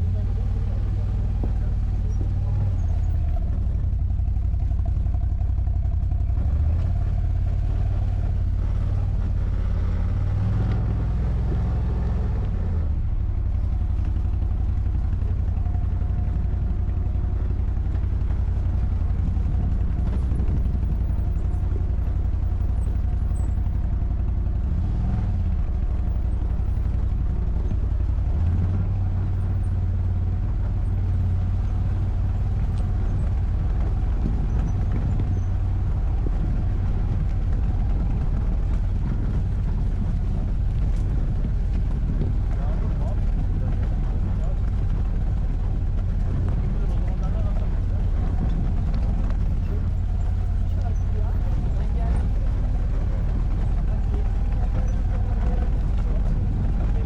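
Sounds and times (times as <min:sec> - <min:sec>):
quad bike engine revving: 0:00.0 - 0:23.8, 0:24.6 - 0:57.0.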